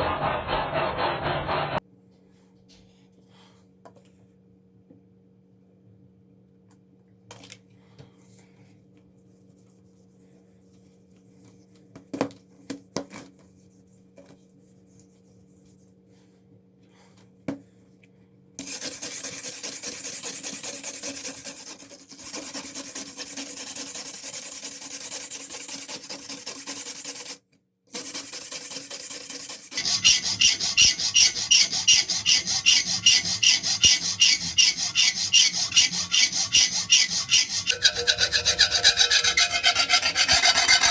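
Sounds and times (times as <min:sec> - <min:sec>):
abrasive scraping on knife blade: 0:18.6 - 0:27.4, 0:28.0 - 0:40.9.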